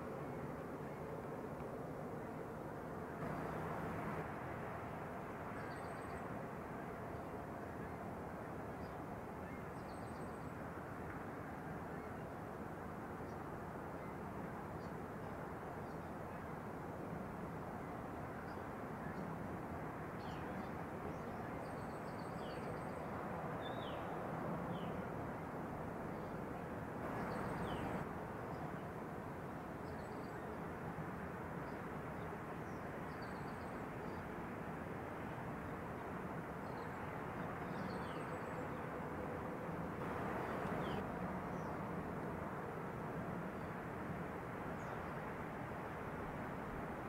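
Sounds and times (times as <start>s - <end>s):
small birds chirping: 27.1s - 28.0s
background rumble and hiss: 39.9s - 43.0s.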